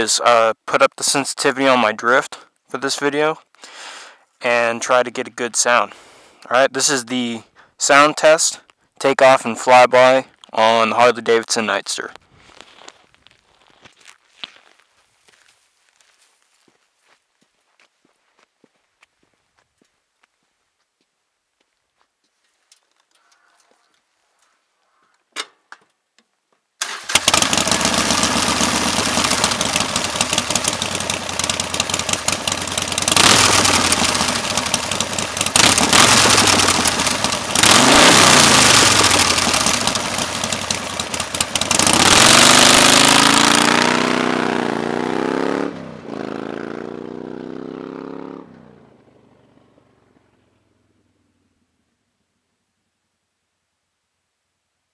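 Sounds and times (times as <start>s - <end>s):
motorcycle engine revving: 26.8s - 51.4s
motorcycle pulling away: 26.8s - 51.6s.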